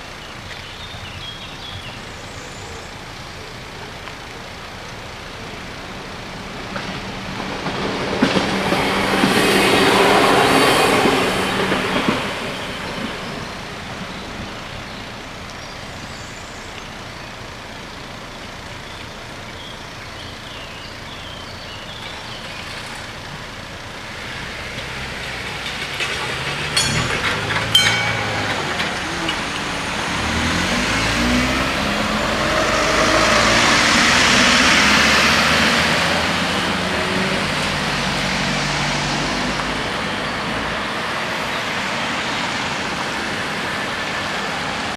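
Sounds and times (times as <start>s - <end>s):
vehicles passing: 0.0s - 44.9s
sharp clacks: 25.4s - 31.0s.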